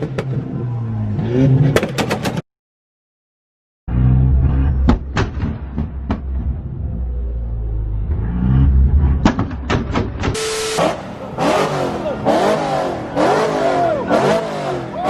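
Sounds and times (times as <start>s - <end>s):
car engines revving: 3.9s - 15.0s.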